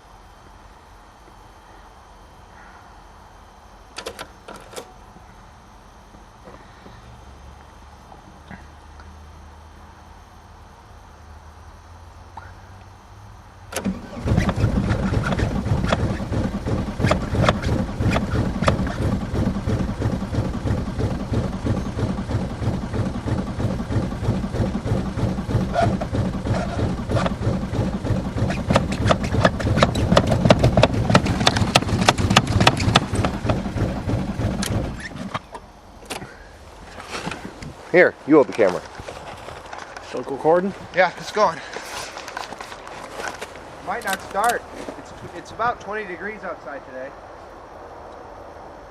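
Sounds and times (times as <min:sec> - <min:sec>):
diesel engine cranking: 0:13.7 - 0:45.6.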